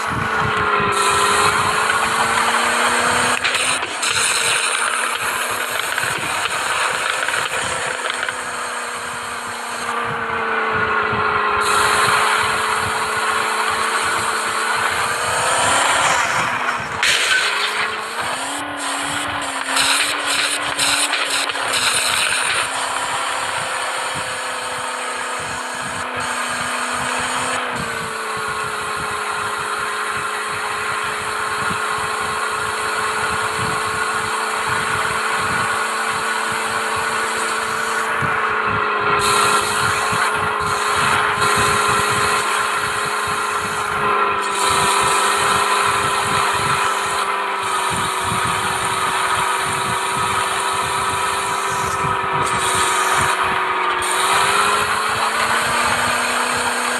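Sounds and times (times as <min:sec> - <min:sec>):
car engine whining: 0:00.0 - 0:56.9.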